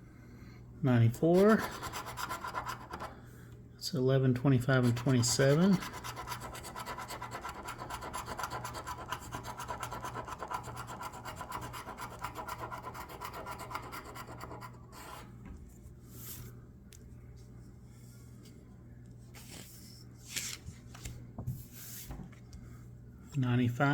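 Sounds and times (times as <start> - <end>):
lottery ticket being scratched: 1.2 - 3.1, 4.4 - 15.3.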